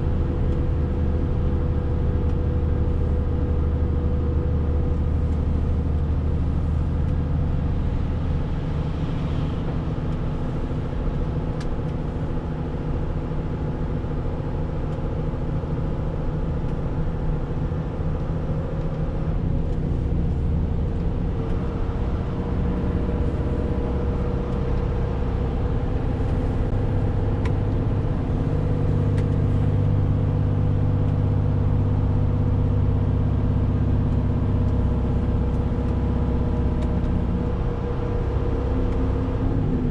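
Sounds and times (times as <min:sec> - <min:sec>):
truck diesel engine running: 0:09.6 - 0:39.9.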